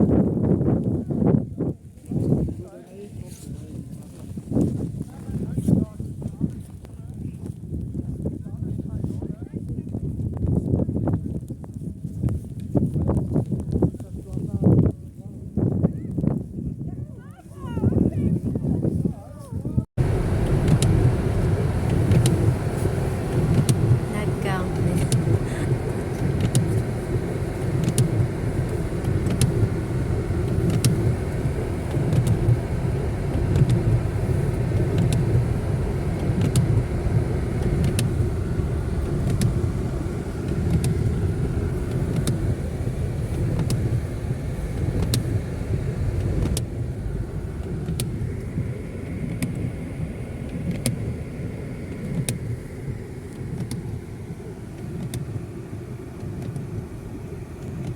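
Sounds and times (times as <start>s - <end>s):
low rumble: 19.8s - 57.9s.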